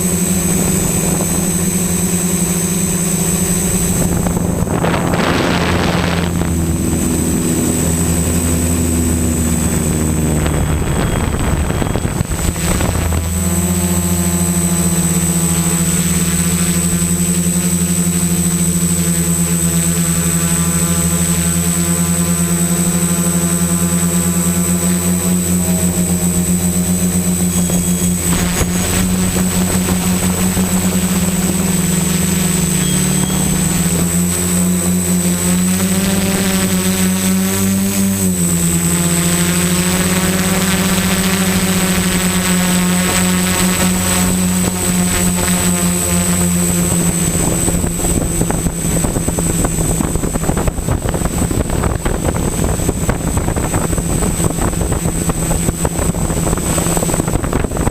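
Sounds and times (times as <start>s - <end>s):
rushing noise: 0.0s - 36.8s
drone motors buzzing: 0.0s - 57.9s.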